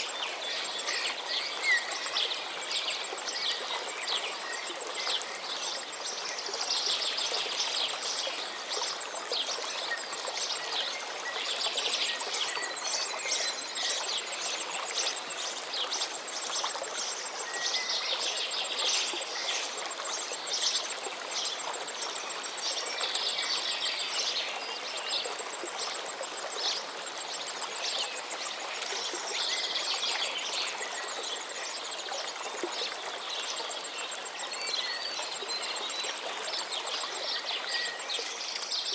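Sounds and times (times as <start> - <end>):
running water: 0.0 - 38.9.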